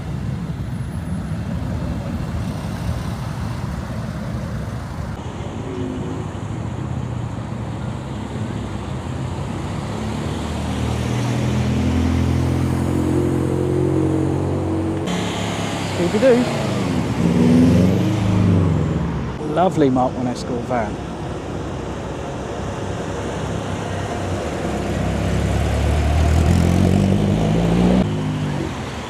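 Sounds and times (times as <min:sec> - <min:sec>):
traffic rumble: 0:00.0 - 0:29.0
nearby car engine: 0:07.8 - 0:19.6, 0:23.2 - 0:29.0.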